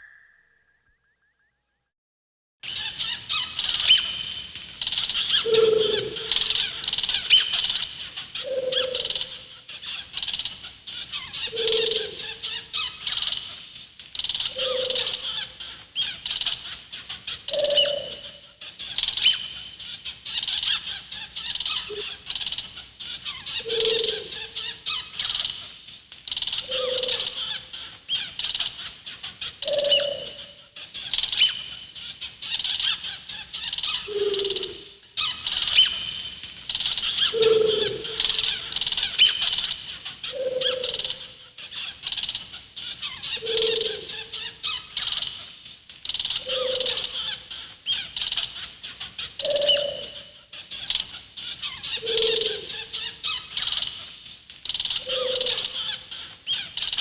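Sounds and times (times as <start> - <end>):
lower synthetic bird call: 0.0 - 1.4, 5.3 - 6.6, 34.1 - 35.0, 37.2 - 39.5.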